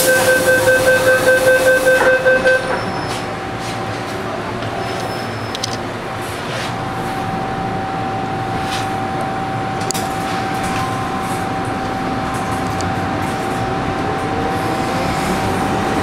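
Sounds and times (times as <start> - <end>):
high whine: 0.0 - 3.6, 6.7 - 15.6
train rumble: 0.0 - 16.0.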